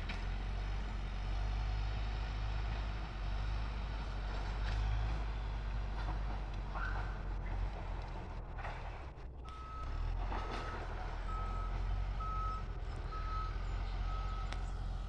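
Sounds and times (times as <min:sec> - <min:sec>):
engine running: 0:00.0 - 0:15.0
reversing alarm beeping: 0:09.5 - 0:10.0, 0:10.6 - 0:14.5.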